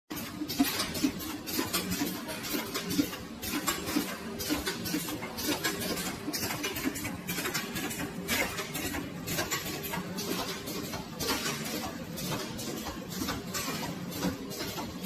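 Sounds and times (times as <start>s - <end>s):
machine clicks and clatters: 0.1s - 15.0s.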